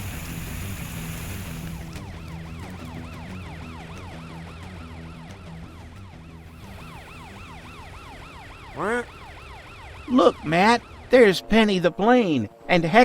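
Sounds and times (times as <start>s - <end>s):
cartoon siren wailing: 2.2s - 11.6s.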